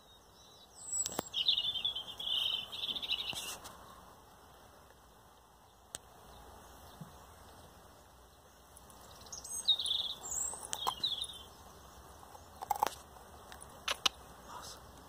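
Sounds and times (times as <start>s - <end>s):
small bird chirping: 0.0s - 4.1s, 5.7s - 15.0s
dog crunching on a stalk: 12.6s - 13.0s.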